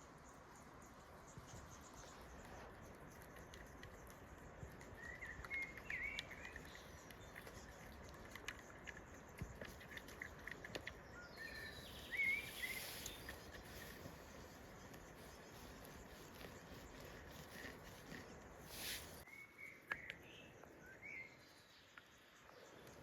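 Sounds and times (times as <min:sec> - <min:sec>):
small bird chirping: 0:00.0 - 0:23.0
steady low hiss: 0:11.0 - 0:19.3.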